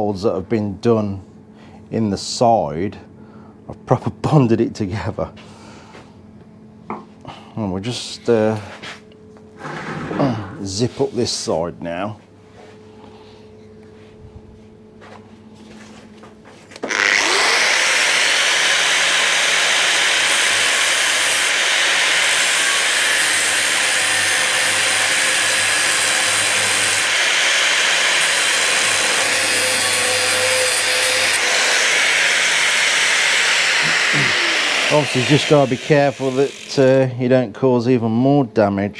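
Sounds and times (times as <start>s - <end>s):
grinder cutting through metal: 16.8s - 37.0s.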